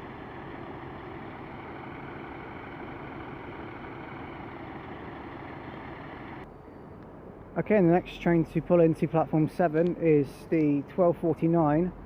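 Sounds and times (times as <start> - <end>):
train diesel engine idling: 0.0 - 6.4.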